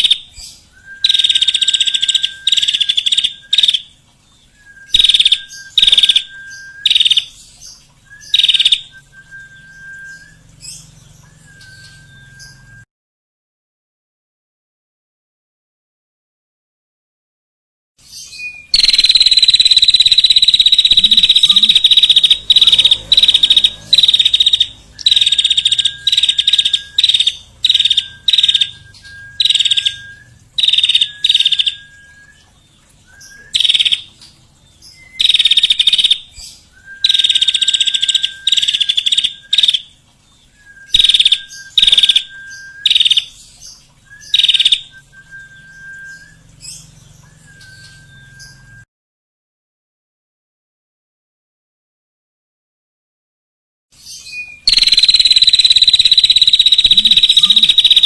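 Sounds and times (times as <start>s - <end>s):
low steady whistle: 11.2s - 12.9s, 47.2s - 48.9s
harsh buzzy bird call: 18.8s - 31.6s, 54.6s - 58.0s.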